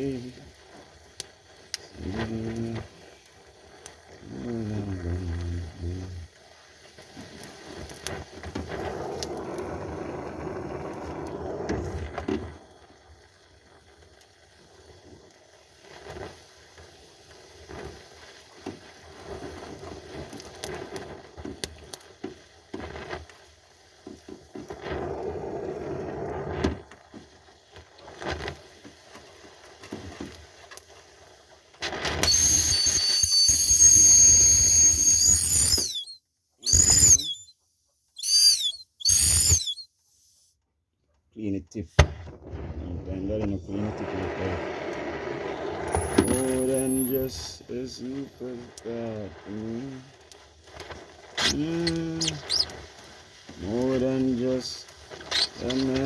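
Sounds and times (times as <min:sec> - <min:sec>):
welding arc crackling: 0:32.2 - 0:37.5, 0:38.2 - 0:39.8, 0:45.8 - 0:48.8, 0:51.4 - 0:52.8.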